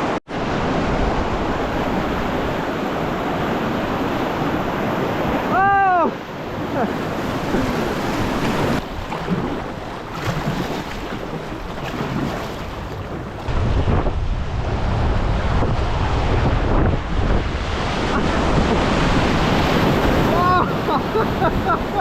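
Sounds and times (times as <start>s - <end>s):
river rapid rushing: 0.0s - 13.6s, 15.1s - 22.0s
wind buffeting microphone: 6.4s - 22.0s.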